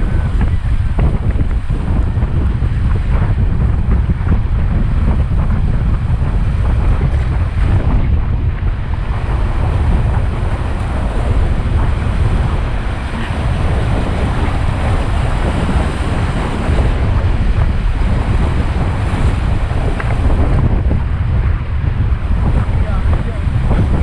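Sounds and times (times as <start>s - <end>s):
wind buffeting microphone: 0.0s - 24.0s
river water rushing: 8.7s - 21.0s.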